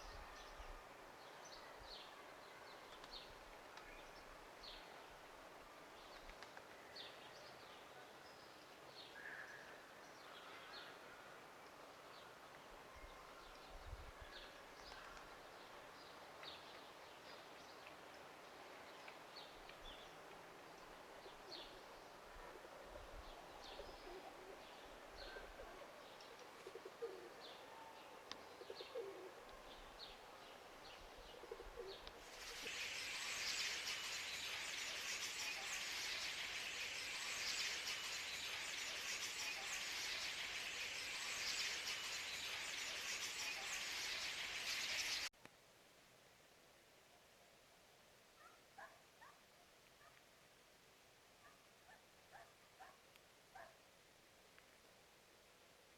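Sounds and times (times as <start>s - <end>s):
high-pitched hiss: 32.2s - 45.3s.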